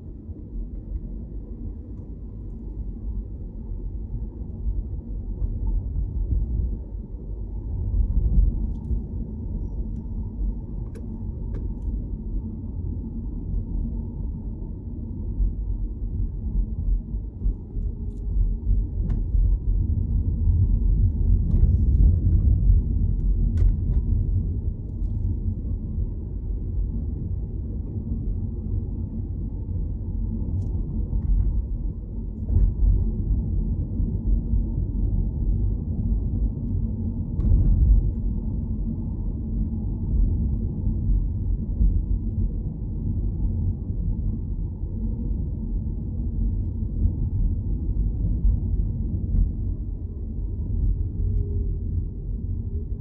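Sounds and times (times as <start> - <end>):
car driving rumble: 16.5 - 26.7.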